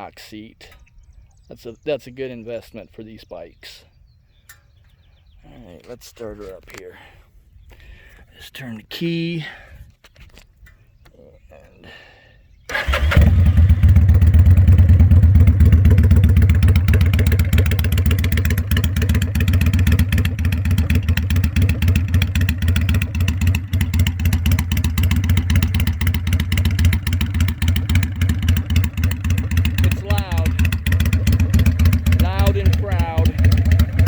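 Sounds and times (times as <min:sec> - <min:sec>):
motorcycle engine idling: 0:12.7 - 0:34.0.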